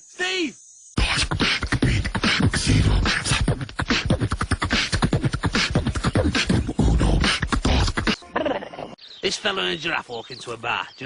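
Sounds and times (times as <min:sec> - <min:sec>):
person beatboxing: 0:01.0 - 0:08.2.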